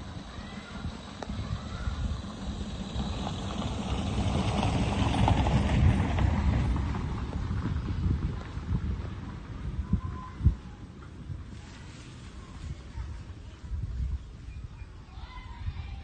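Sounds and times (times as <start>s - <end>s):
vehicle passing by: 0.0s - 9.9s
wind rumble on microphone: 0.0s - 16.0s.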